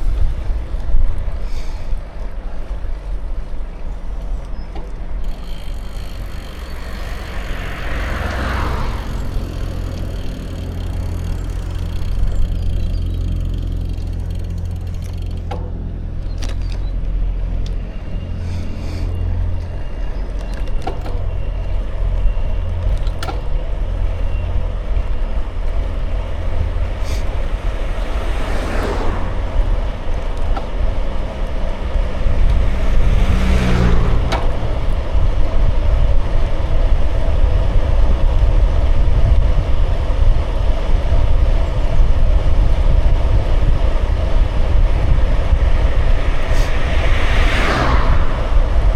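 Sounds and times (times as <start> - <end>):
bicycle tyres rolling: 0.0 - 48.9
vehicle passing: 2.2 - 48.9
wind on microphone: 24.6 - 48.9.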